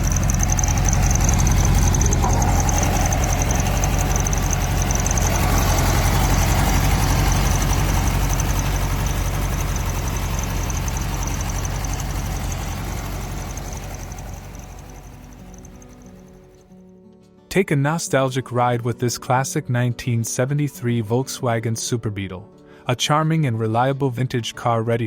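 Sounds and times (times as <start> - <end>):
car engine idling: 0.0 - 16.6.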